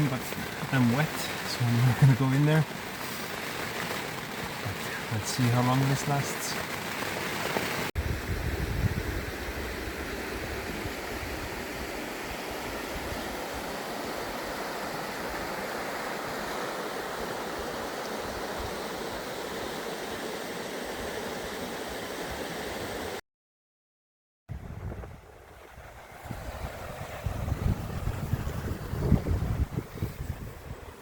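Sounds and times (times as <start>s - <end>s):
sleet and rain falling: 0.0s - 8.0s
wind rumble on microphone: 8.0s - 14.5s, 24.5s - 31.0s.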